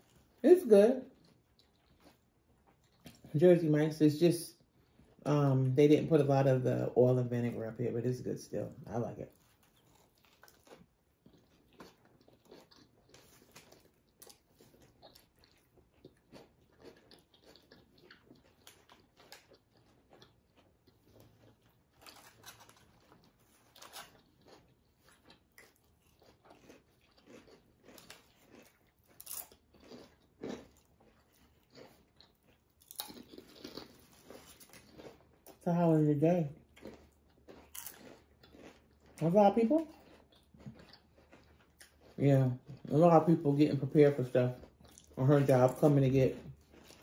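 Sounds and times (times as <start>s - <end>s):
chewing smacks and crunches: 1.1s - 3.4s, 9.3s - 35.7s, 36.6s - 43.0s, 44.5s - 47.0s.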